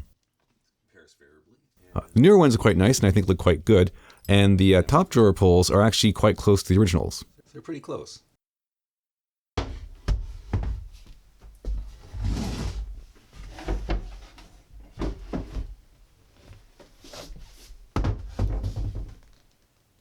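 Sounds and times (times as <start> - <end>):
drawer scraping on runners: 11.9 - 14.5.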